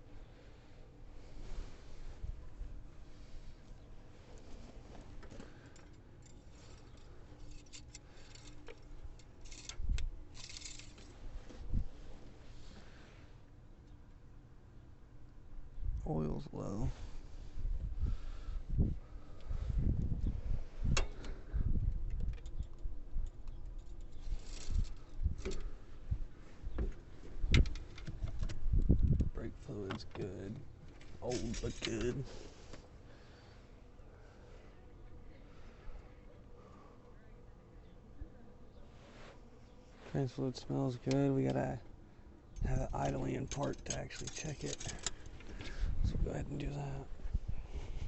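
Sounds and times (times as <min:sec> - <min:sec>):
hands handling parts: 0:04.3 - 0:11.6, 0:43.0 - 0:45.8
metallic clicks and scrapes of dipstick: 0:43.0 - 0:45.7.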